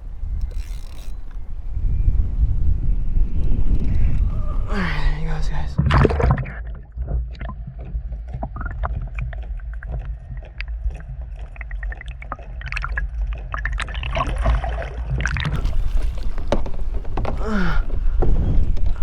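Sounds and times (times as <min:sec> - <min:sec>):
wind rumble on microphone: 0:00.0 - 0:19.0
fishing reel clicking: 0:00.3 - 0:01.4.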